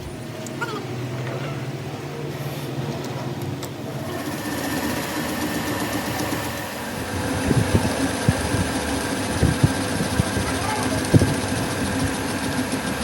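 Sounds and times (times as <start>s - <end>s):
machine motor running: 3.0s - 13.0s.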